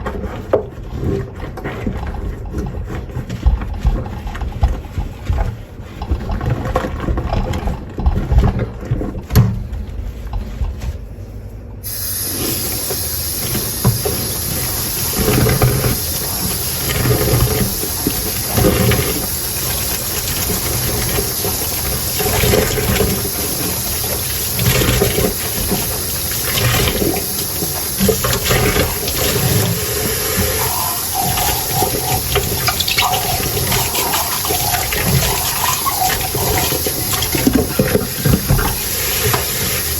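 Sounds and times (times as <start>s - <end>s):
tap water running into sink: 11.9s - 39.9s.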